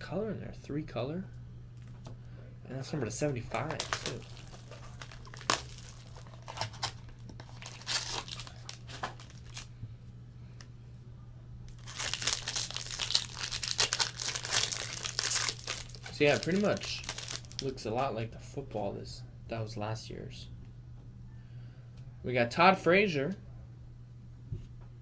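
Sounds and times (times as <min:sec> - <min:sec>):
wrapper crinkling and tearing: 0:03.2 - 0:09.7, 0:11.7 - 0:18.0.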